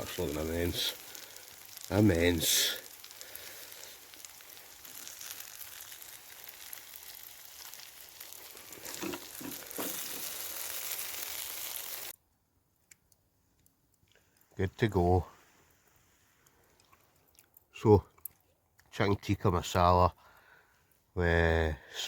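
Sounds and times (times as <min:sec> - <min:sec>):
food sizzling in a pan: 0:00.0 - 0:12.2.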